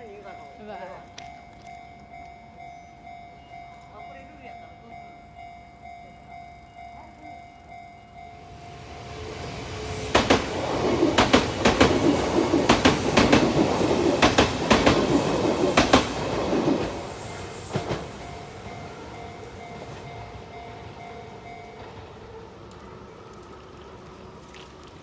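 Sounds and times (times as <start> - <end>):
electric train passing: 0.0 - 25.0
wheels clacking over rail joints: 9.3 - 20.2.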